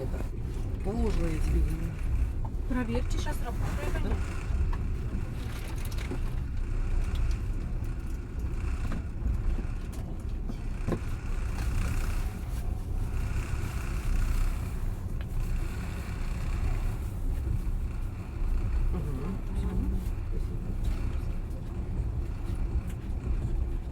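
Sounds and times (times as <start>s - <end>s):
train rumbling on rails: 0.0s - 23.9s.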